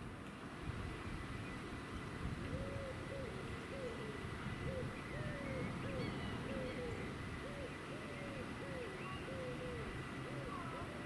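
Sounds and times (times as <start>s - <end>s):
bird hooting: 2.5s - 11.0s
faint bird chirps: 2.6s - 11.0s.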